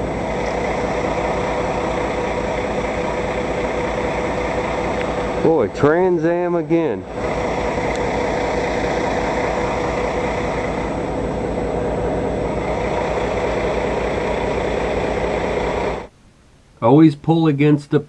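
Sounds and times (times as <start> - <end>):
truck diesel engine idling: 0.0 - 16.1.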